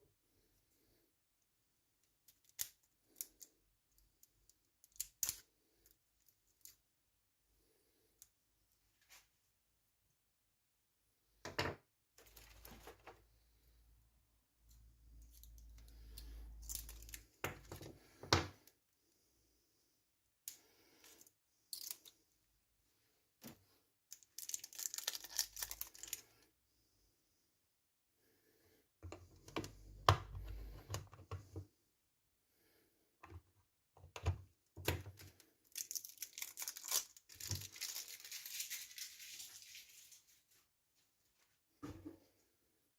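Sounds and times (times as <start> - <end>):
packaging rustling and crinkling: 35.7 - 40.6.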